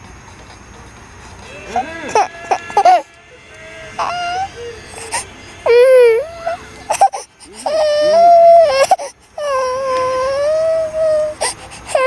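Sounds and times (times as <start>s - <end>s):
small child crying: 1.5s - 3.1s, 4.0s - 12.0s.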